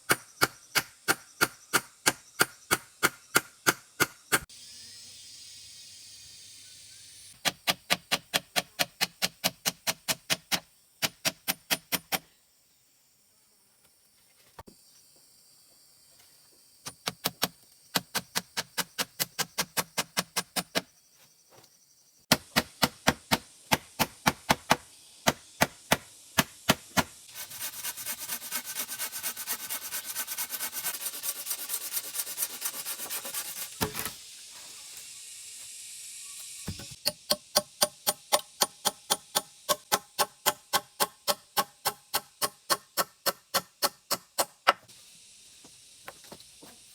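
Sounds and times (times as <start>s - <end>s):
knife scraping strokes: 27.3s - 35.0s.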